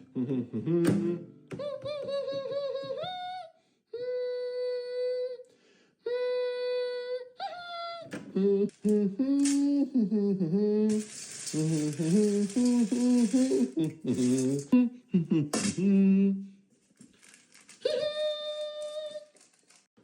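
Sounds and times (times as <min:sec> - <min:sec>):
person humming long notes: 0:00.0 - 0:16.6
hiss: 0:10.9 - 0:14.7.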